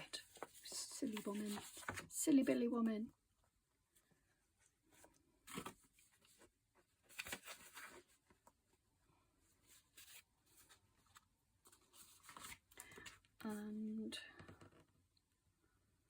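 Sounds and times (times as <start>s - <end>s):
paper pages rustling: 0.0s - 2.6s, 4.9s - 8.5s, 9.6s - 13.2s.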